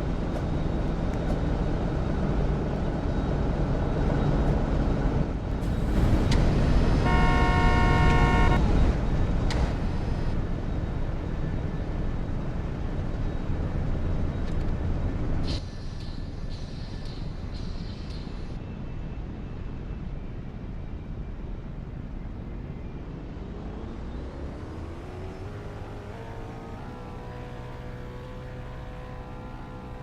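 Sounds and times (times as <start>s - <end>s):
horn note: 7.0s - 8.6s.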